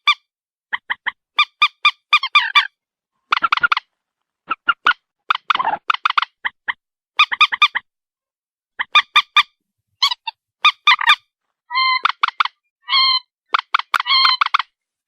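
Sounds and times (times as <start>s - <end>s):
moorhen calling: 3.3s - 3.8s, 10.0s - 14.7s.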